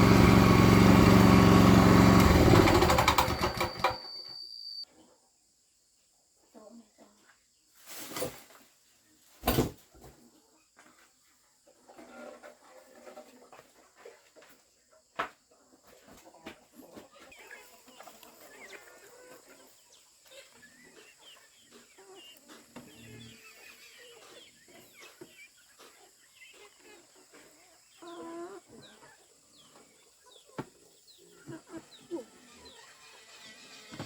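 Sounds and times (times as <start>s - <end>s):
chickens clucking and chirping: 10.0s - 34.0s.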